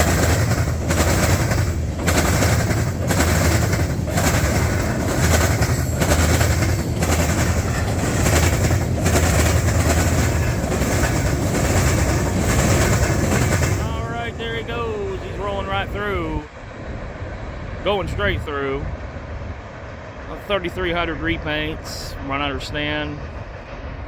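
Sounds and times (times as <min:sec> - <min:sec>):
train wheels clacking on rail joints: 0:00.0 - 0:15.7
freight train rumble: 0:00.0 - 0:24.0.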